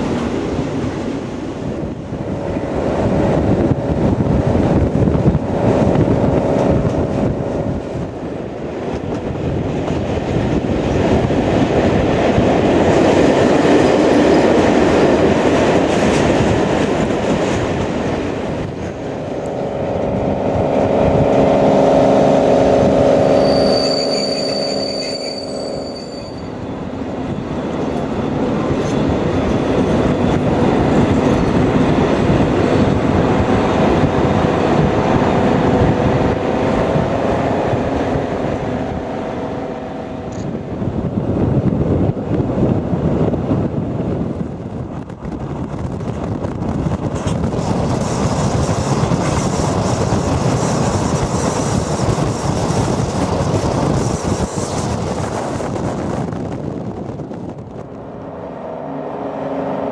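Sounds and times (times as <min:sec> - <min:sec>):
train wheels rumbling on rail: 0:00.0 - 0:59.9
thin high squeal: 0:23.1 - 0:26.6.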